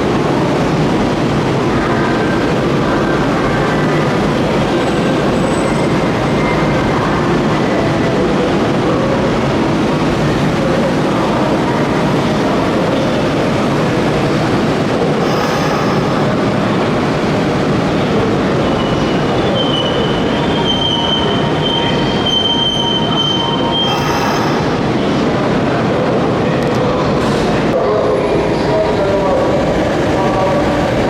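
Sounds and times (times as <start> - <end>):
electric train rumble: 0.0 - 31.0
train wheels squealing: 18.7 - 24.7.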